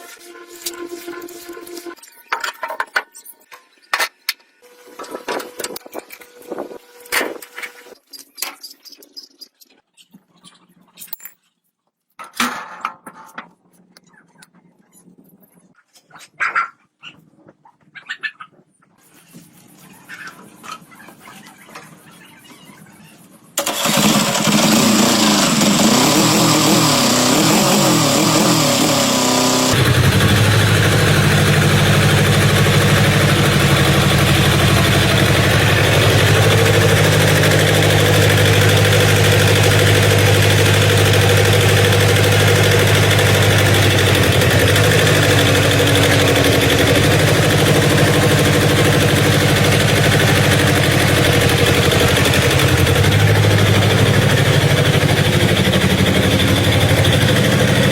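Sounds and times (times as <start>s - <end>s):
tractor diesel engine idling: 23.6s - 57.9s.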